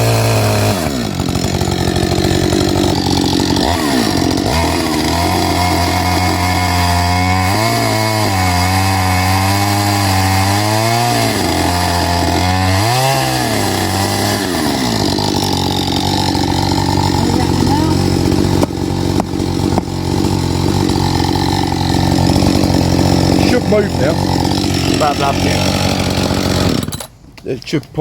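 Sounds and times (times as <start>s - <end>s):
chainsaw cutting wood: 0.0s - 27.2s.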